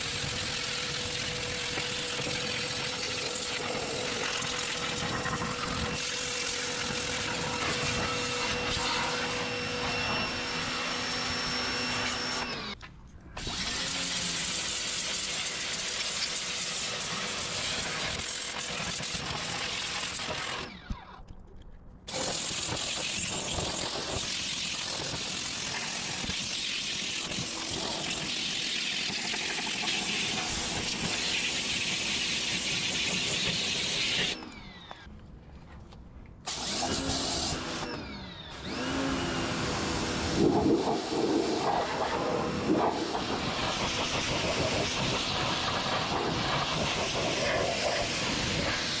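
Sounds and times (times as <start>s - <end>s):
pressure washer spraying water: 22.2s - 34.4s, 36.5s - 37.8s, 38.7s - 49.0s.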